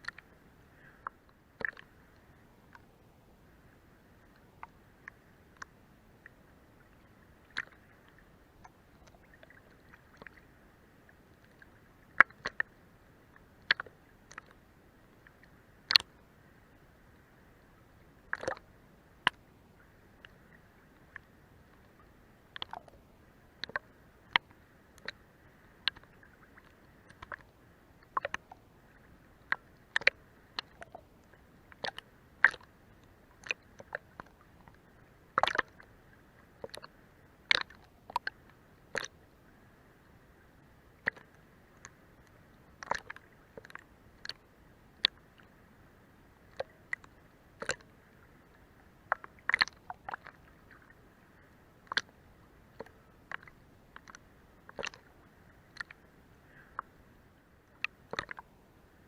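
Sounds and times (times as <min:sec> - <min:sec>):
faint water wash: 0:00.0 - 0:59.0
water slapping boat hull: 0:18.2 - 0:18.6, 0:35.4 - 0:35.8, 0:37.5 - 0:39.2, 0:46.5 - 0:51.0.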